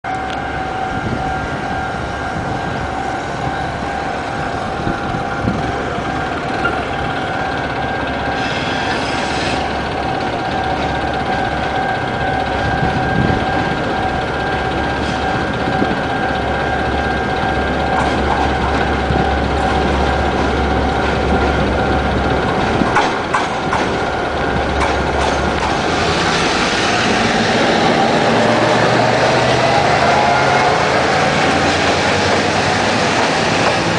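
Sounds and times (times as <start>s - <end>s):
locomotive engine rumble: 0.1s - 33.9s
train wheel noise: 0.1s - 33.9s
level-crossing two-tone ring: 9.6s - 22.4s.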